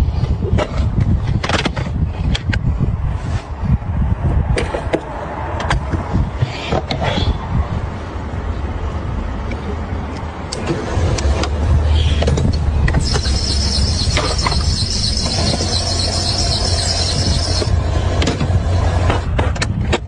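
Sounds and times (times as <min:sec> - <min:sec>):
car engine rumbling: 0:12.4 - 0:19.2
high-pitched whine: 0:12.6 - 0:18.7.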